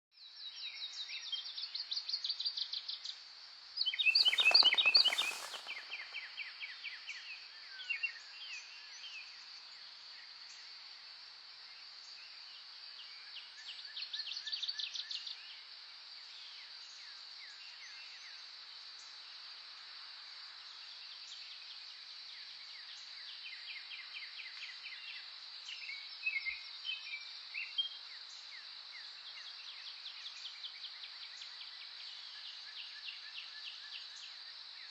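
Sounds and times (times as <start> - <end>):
wild birds trilling and chirping: 4.0 - 6.2
high insect drone: 4.2 - 6.1.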